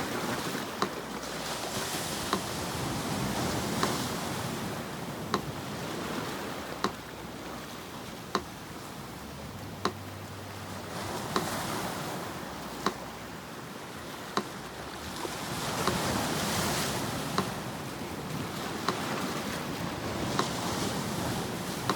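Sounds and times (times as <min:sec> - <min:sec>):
metronome ticking: 0:00.0 - 0:01.4, 0:02.2 - 0:18.1, 0:18.8 - 0:21.9
sea surf washing: 0:00.0 - 0:21.9.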